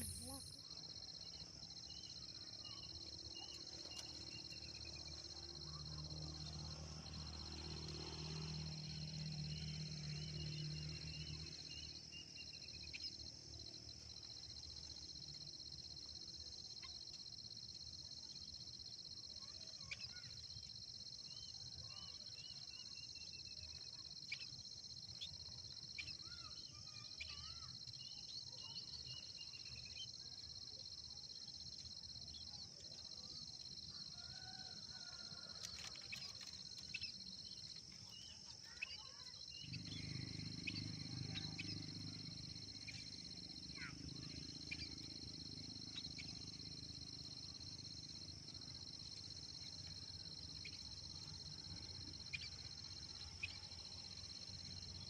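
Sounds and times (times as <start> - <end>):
short bird chirps: 0.0 - 0.7
high-pitched insect drone: 0.0 - 3.6, 4.4 - 16.3, 33.1 - 55.0.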